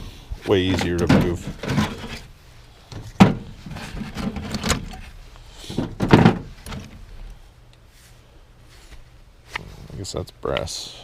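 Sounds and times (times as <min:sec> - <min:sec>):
hard objects clattering: 0:00.6 - 0:02.3, 0:02.9 - 0:07.0.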